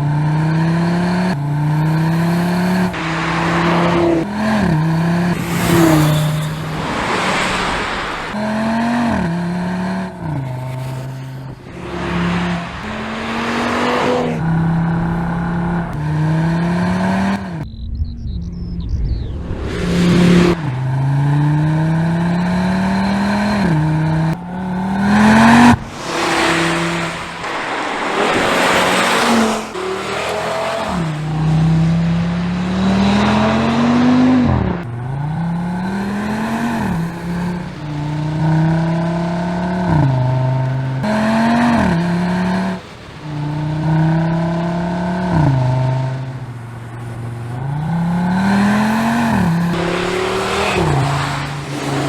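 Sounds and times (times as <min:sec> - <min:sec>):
car engine accelerating hard: 0:00.0 - 0:52.0
loud rushing noise: 0:02.9 - 0:08.4, 0:11.5 - 0:21.4, 0:25.2 - 0:31.2.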